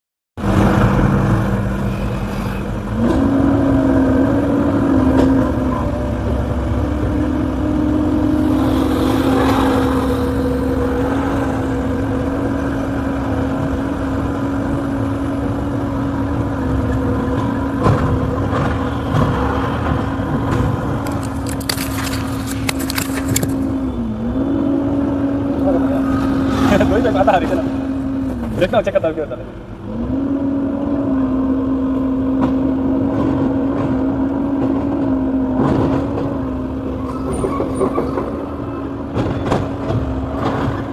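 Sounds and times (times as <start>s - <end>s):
excavator diesel engine running: 0.4s - 29.9s.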